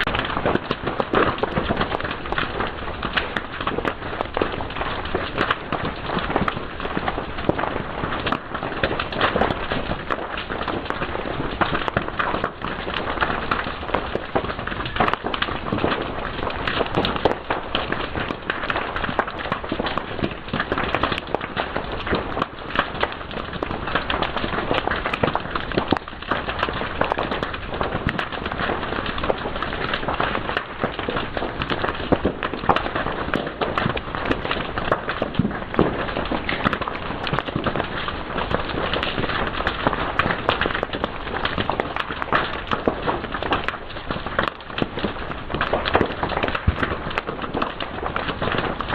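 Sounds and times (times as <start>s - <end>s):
fire crackling: 0.0s - 48.9s.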